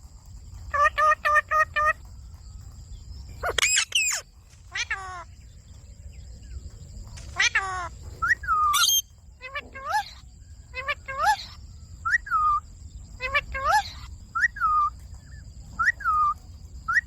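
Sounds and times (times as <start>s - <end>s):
parakeet calling: 3.3s - 5.4s, 7.2s - 17.0s
parakeet squawk: 3.4s - 5.3s, 7.3s - 12.6s, 13.2s - 14.9s.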